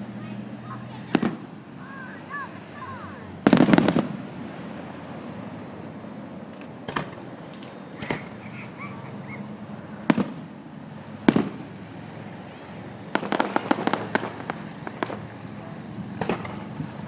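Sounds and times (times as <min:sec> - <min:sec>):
fireworks bangs: 0:00.6 - 0:05.1, 0:06.7 - 0:10.6, 0:11.2 - 0:11.8, 0:13.1 - 0:15.5, 0:16.1 - 0:17.0
fireworks crackling pops: 0:01.0 - 0:01.5, 0:03.4 - 0:04.3, 0:06.5 - 0:08.5, 0:10.0 - 0:10.6, 0:11.2 - 0:11.8, 0:13.1 - 0:15.4, 0:16.1 - 0:17.0.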